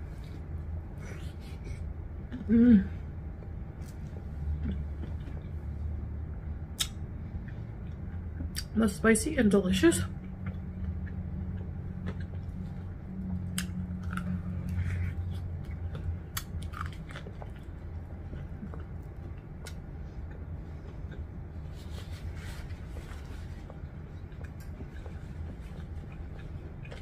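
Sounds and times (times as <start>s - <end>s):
steady low hum: 0.0s - 27.0s
person chewing crispy chicken: 10.2s - 27.0s.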